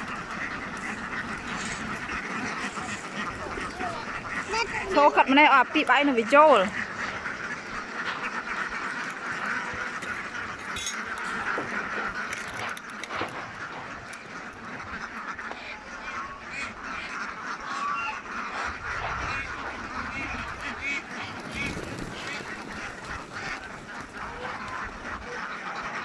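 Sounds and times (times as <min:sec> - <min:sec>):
ducks quacking: 0:00.0 - 0:26.0.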